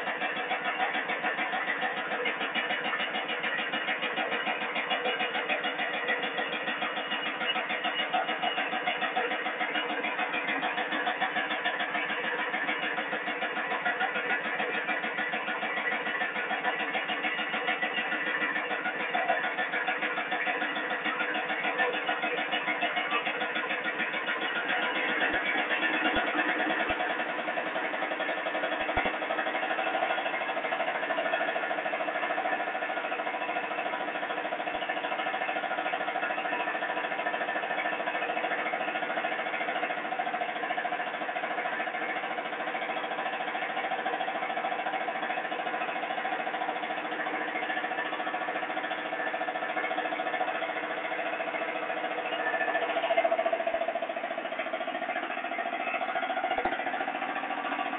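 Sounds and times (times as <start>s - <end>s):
diesel generator running: 0.0s - 57.9s.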